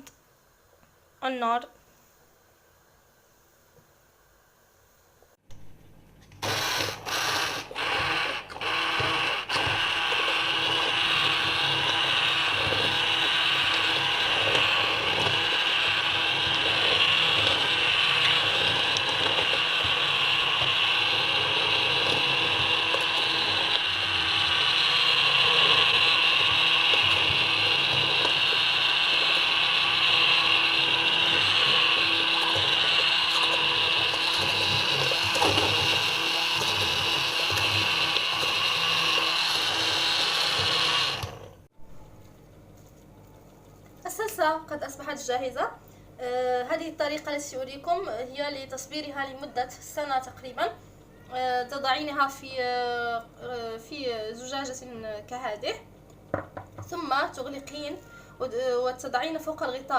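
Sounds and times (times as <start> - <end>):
electric blender motor: 6.4 - 41.7.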